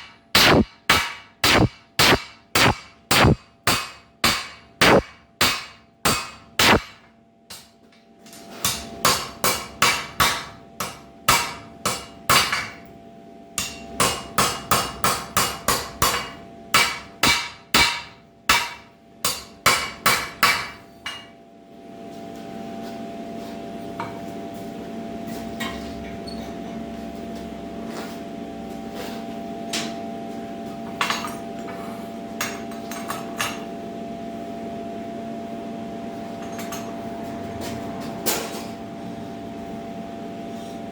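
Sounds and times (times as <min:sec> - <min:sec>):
steady hum: 0:00.0 - 0:07.1
hammer striking steel on anvil: 0:00.0 - 0:07.7, 0:08.6 - 0:12.8, 0:13.6 - 0:21.3.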